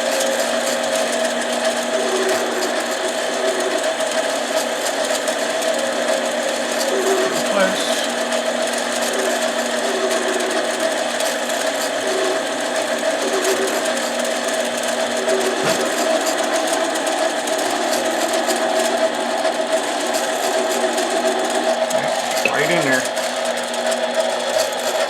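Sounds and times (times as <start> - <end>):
metal lathe motor hum: 0.0 - 25.0.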